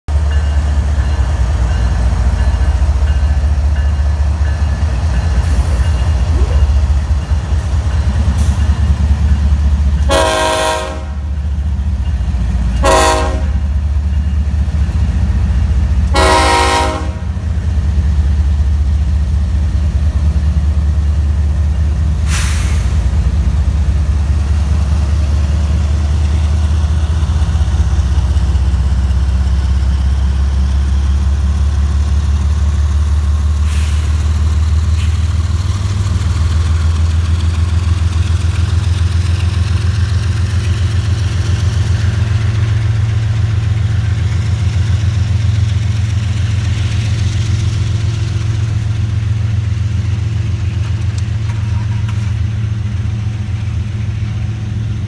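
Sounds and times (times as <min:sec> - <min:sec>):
locomotive engine drone: 0:00.1 - 0:55.0
locomotive horn blasts: 0:10.0 - 0:11.3, 0:12.8 - 0:13.6, 0:16.1 - 0:17.4.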